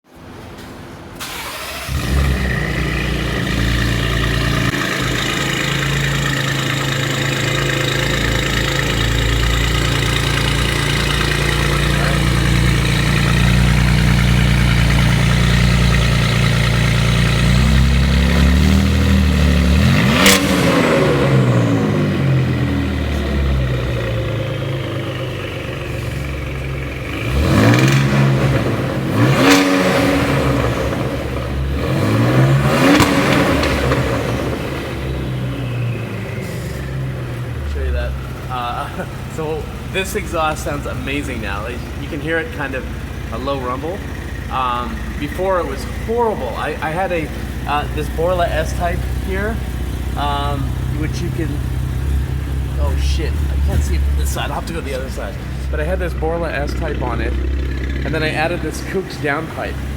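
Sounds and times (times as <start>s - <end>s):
car engine starting and revving: 1.0s - 59.9s.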